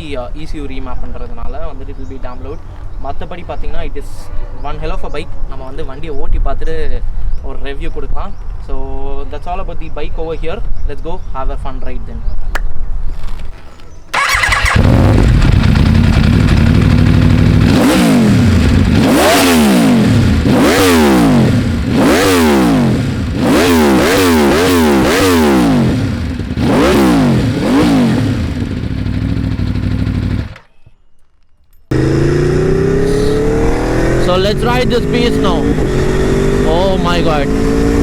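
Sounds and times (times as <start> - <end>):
motorcycle engine idling and revving: 14.1 - 30.7, 31.9 - 38.0.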